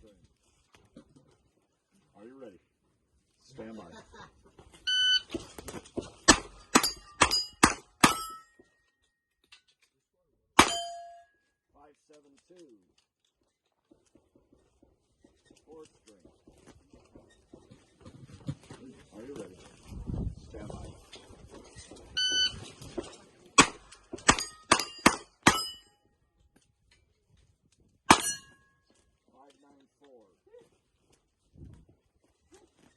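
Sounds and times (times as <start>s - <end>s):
shot timer beep: 4.9s - 5.3s, 22.2s - 22.6s
bullets ringing on steel plate: 6.3s - 8.7s, 10.6s - 11.4s, 23.6s - 26.0s, 28.1s - 28.8s.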